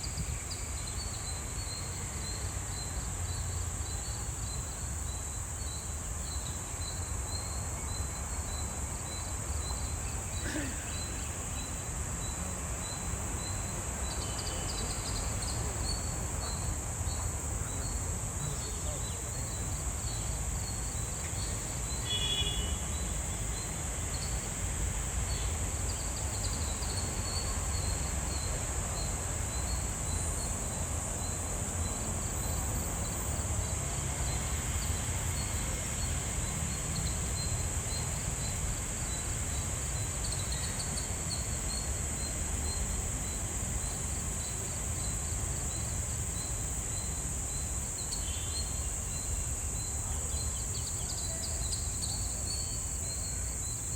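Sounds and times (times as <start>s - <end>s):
faint bird chirps: 0.0s - 24.4s, 37.0s - 53.9s
high-pitched insect drone: 0.0s - 53.9s.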